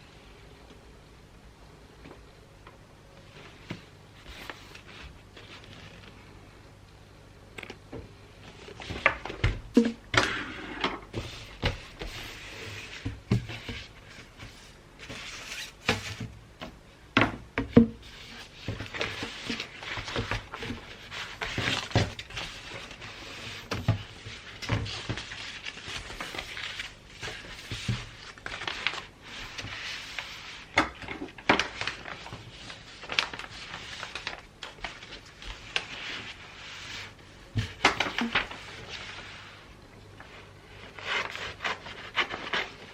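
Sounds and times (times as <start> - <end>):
wrapping paper rustling: 4.2 - 6.4, 18.0 - 42.9.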